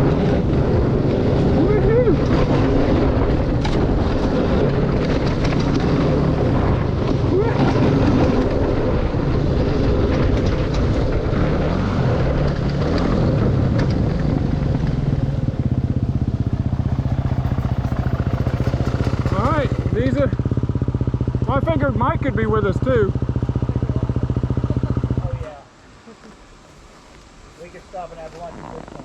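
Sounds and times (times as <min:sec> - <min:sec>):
wind noise on microphone: 0:00.0 - 0:19.9
dirt bike engine running: 0:00.0 - 0:25.6.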